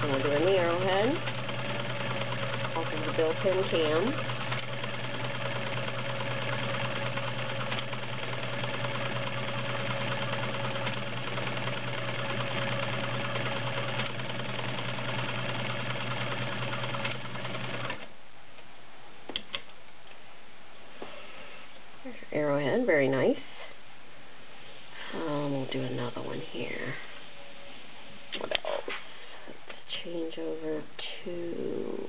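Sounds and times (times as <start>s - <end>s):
sewing machine running: 0.0s - 18.1s.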